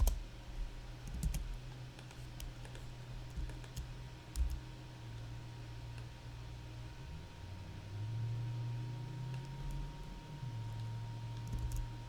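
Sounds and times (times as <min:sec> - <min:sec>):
steady low hum: 0:00.0 - 0:12.0
keyboard and mouse clicks: 0:01.1 - 0:04.6, 0:11.4 - 0:11.9.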